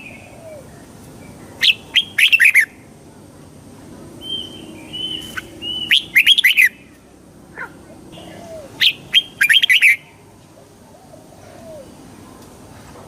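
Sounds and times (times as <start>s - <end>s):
bird singing whistled notes: 1.2s - 2.8s, 4.2s - 6.9s, 8.2s - 10.1s.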